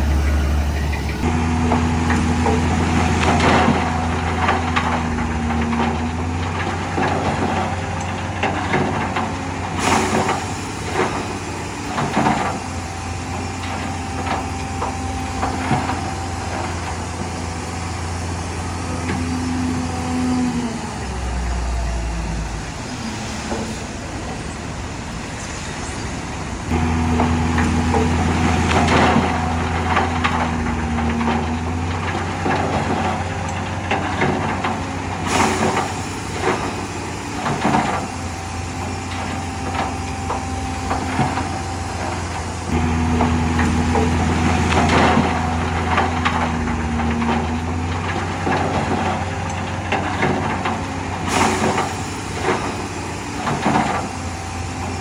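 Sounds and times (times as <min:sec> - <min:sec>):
heavy machinery diesel engine: 0:00.0 - 0:55.0
metal clanks and knocks: 0:26.7 - 0:36.8, 0:39.0 - 0:54.2.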